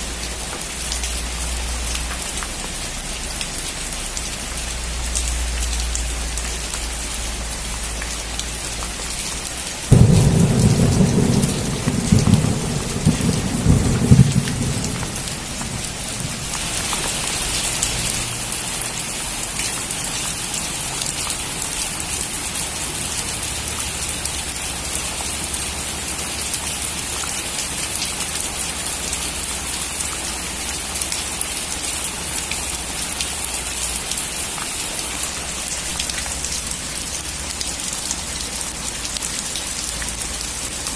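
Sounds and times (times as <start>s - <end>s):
steady rain: 0.0s - 40.9s
thunderclap rumbling: 9.9s - 17.3s.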